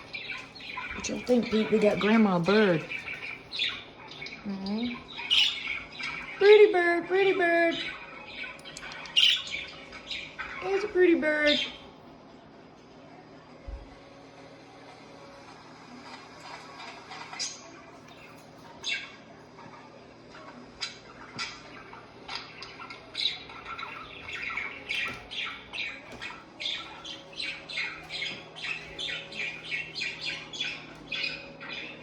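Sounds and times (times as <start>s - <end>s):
budgerigar chirping and squawking: 0.0s - 6.4s, 7.7s - 10.8s, 20.4s - 32.0s.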